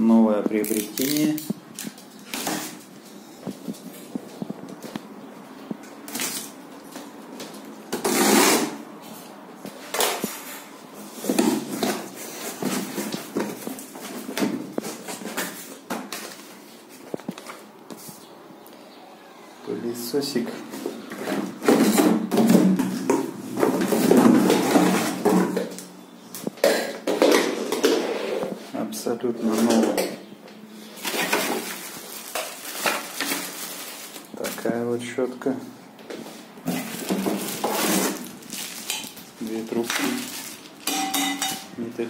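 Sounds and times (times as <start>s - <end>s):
rustling and handling: 9.0s - 18.3s, 30.8s - 35.2s, 35.9s - 41.7s
packaging rustling: 30.8s - 34.8s, 36.6s - 40.9s.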